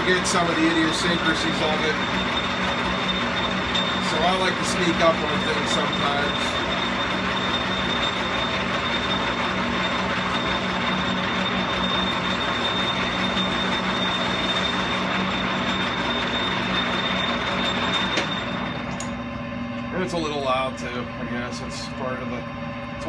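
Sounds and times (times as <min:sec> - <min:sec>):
metal lathe running: 0:00.0 - 0:19.4.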